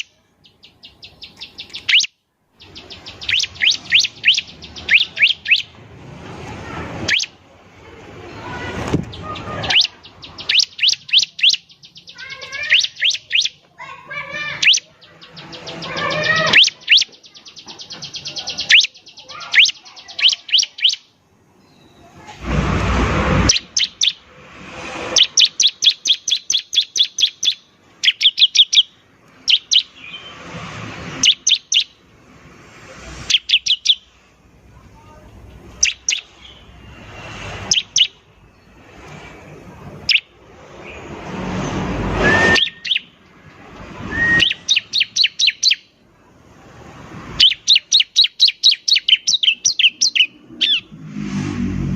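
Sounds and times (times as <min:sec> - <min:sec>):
bird chip notes and trills: 0:00.0 - 0:05.8, 0:09.2 - 0:13.6, 0:14.2 - 0:22.0, 0:25.2 - 0:30.3, 0:44.2 - 0:45.9, 0:47.4 - 0:50.9.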